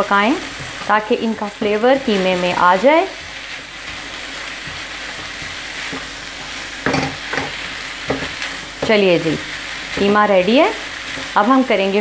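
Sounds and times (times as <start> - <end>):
meat sizzling in a frying pan: 0.0 - 12.0
spatula stirring and scraping: 0.0 - 12.0
spatula knocking on pan: 4.6 - 9.2.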